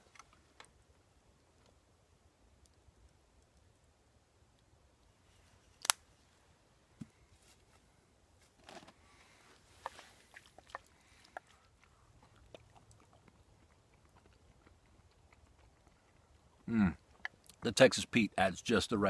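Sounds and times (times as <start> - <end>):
chewing: 9.6 - 17.6.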